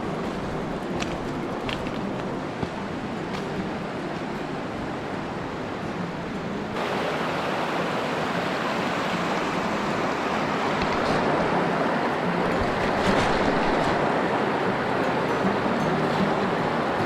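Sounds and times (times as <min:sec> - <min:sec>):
creek water rushing: 0:00.0 - 0:17.0.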